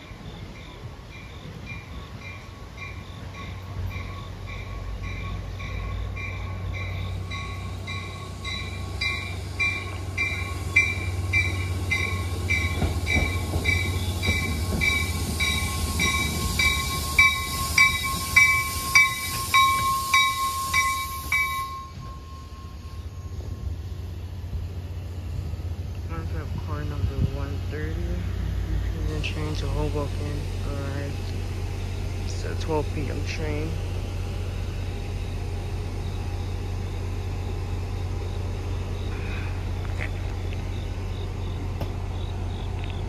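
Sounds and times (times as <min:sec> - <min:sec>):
train rumble: 0:00.0 - 0:43.0
train wheel knocks: 0:11.4 - 0:20.0
air hiss: 0:12.9 - 0:21.7
bell ringing: 0:14.4 - 0:23.4.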